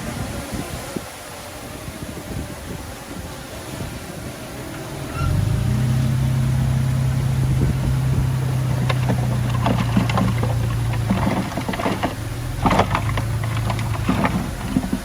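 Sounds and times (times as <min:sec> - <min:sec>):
diesel engine running under load: 0:04.7 - 0:15.0
metallic clanks and rattles: 0:06.1 - 0:15.0.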